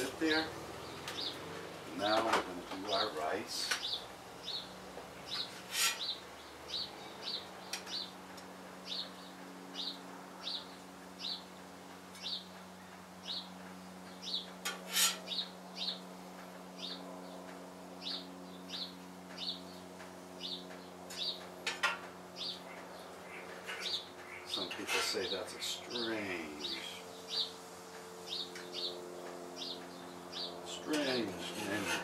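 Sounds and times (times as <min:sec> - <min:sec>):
small bird chirping: 0:00.8 - 0:01.4, 0:03.6 - 0:08.2, 0:18.0 - 0:19.8, 0:20.4 - 0:21.5, 0:22.4 - 0:27.6, 0:28.2 - 0:29.0, 0:29.6 - 0:32.0.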